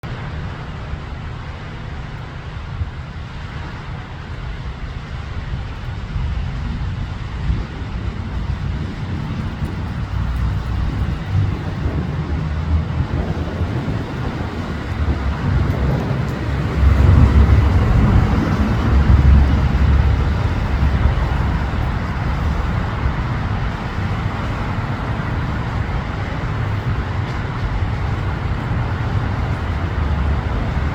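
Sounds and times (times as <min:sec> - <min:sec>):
low rumble of road traffic: 0:00.0 - 0:30.9
vehicle passing: 0:07.5 - 0:30.9.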